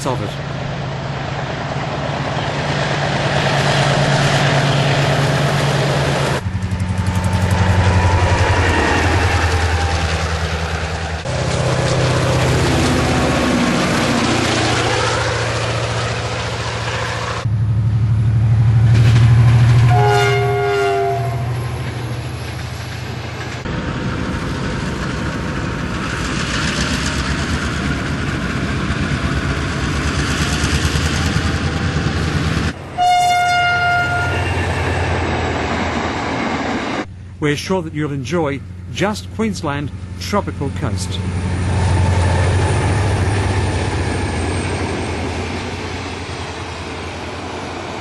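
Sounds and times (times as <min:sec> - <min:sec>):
diesel locomotive engines throbbing: 0:00.0 - 0:48.0
train horn: 0:19.7 - 0:21.8, 0:33.0 - 0:34.7.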